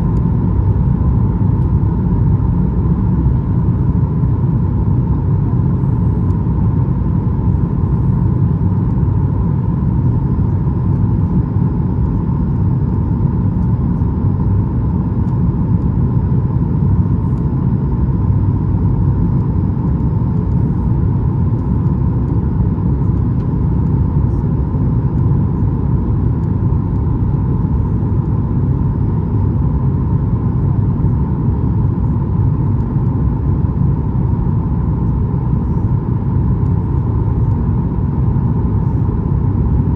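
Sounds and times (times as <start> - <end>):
aircraft cabin rumble: 0.0 - 39.9.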